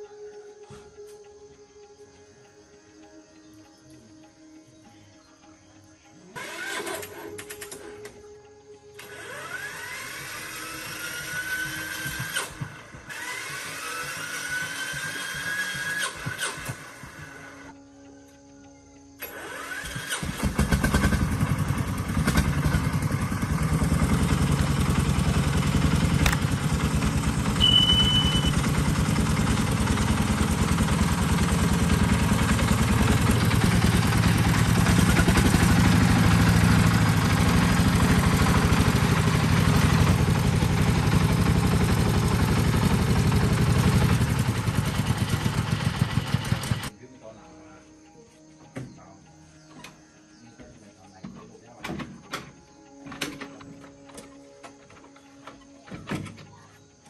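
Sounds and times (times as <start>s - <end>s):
truck engine starting and running: 6.2s - 18.4s, 19.1s - 46.9s, 48.7s - 57.0s.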